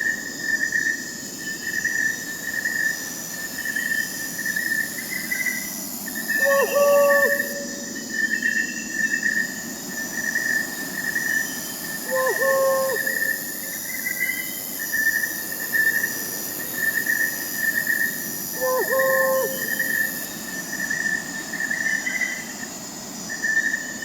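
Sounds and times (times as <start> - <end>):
crickets chirping: 0.0 - 24.0
owl hooting: 6.3 - 7.9, 12.0 - 13.7, 18.6 - 20.2.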